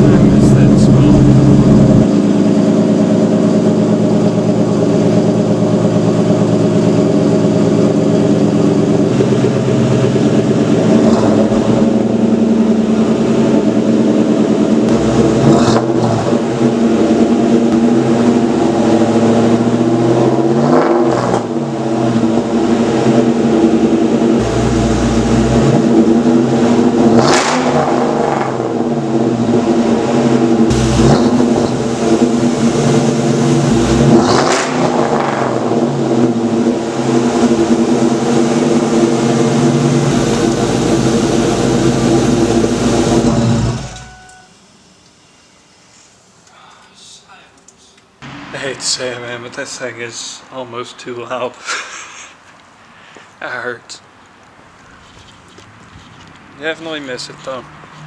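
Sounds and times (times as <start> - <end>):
loud car engine idling: 0.0 - 44.2
engine throttle blips: 0.0 - 44.6.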